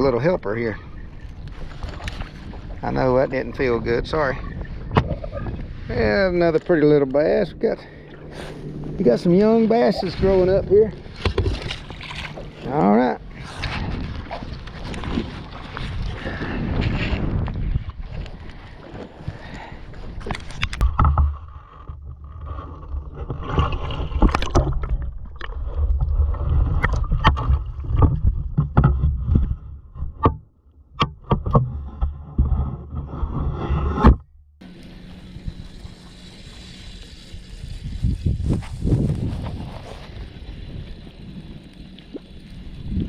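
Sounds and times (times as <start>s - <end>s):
low rumble: 0.0s - 30.2s
steady hiss: 34.6s - 40.2s.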